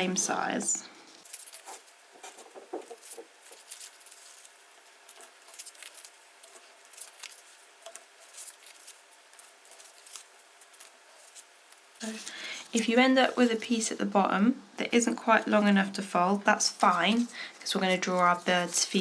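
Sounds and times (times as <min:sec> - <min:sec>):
paper being folded: 0:01.2 - 0:13.5, 0:16.6 - 0:19.0.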